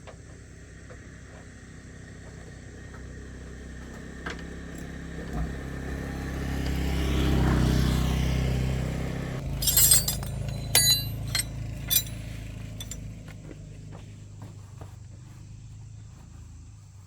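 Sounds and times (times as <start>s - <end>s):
engine running: 0.0s - 17.0s
sharp metallic clinks: 9.4s - 13.2s.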